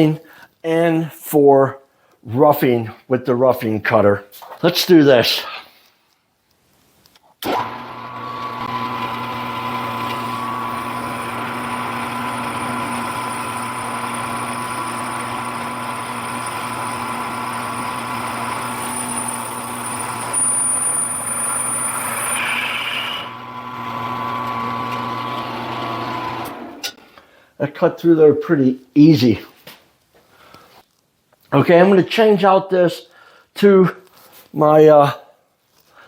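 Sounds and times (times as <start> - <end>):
milling machine hum: 7.5 - 26.9
drill cutting whine: 7.5 - 27.0
high-pitched squeal: 18.5 - 23.4.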